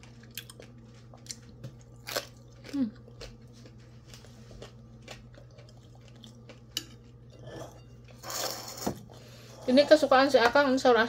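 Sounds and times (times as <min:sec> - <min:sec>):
quiet chewing: 0:00.0 - 0:08.6
steady low hum: 0:00.0 - 0:11.0.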